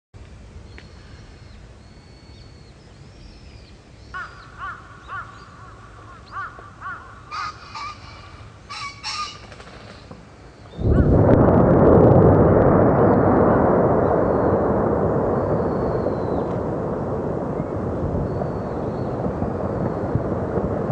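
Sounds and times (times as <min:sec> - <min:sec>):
high whistled bird calls: 0:00.7 - 0:04.5, 0:15.4 - 0:16.6, 0:17.6 - 0:20.1
birds cawing harshly: 0:04.1 - 0:10.1
low steady rumble: 0:10.6 - 0:20.9.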